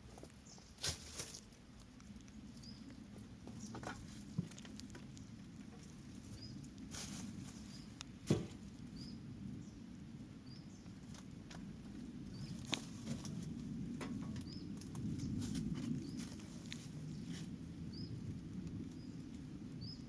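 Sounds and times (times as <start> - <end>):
small bird chirping: 2.2 - 8.1, 8.8 - 11.2, 12.2 - 13.3, 14.3 - 20.0.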